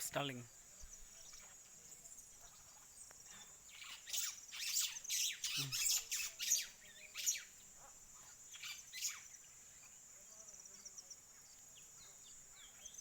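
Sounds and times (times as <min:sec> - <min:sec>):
insect trill: 0:00.0 - 0:13.0.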